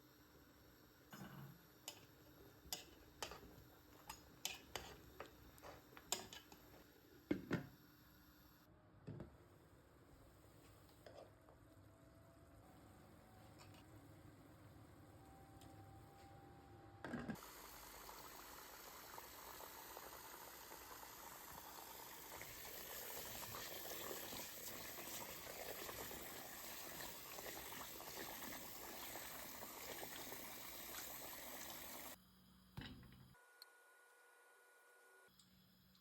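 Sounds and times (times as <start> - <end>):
food sizzling in a pot: 0.0 - 8.4, 17.4 - 32.2.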